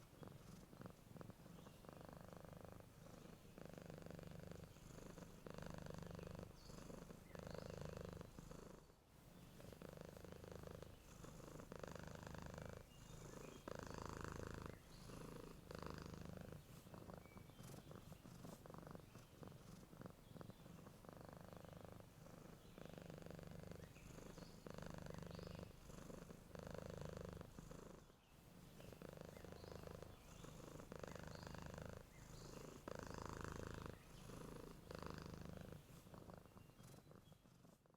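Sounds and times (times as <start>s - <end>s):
cat purring: 0.0s - 37.9s.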